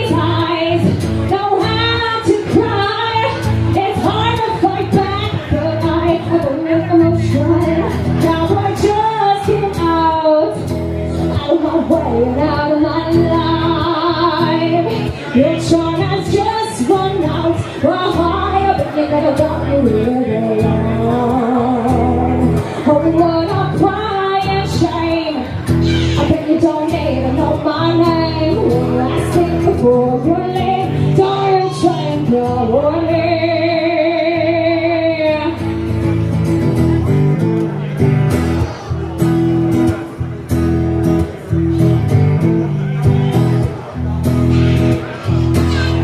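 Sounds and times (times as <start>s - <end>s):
woman singing: 0.0s - 35.7s
guitar: 0.0s - 46.0s
live country-pop band: 0.0s - 46.0s.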